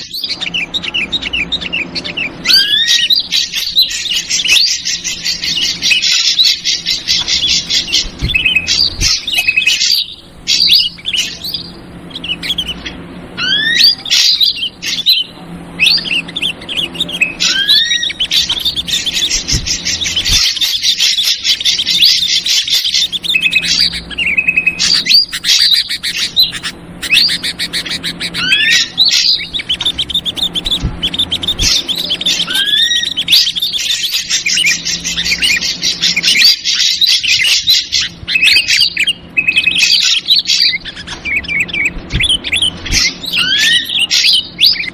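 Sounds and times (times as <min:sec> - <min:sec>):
rising whistled bird notes: 0:00.0 - 0:37.8, 0:38.4 - 0:44.9
bulbuls chattering: 0:00.0 - 0:44.9
drongo calls: 0:00.0 - 0:44.9.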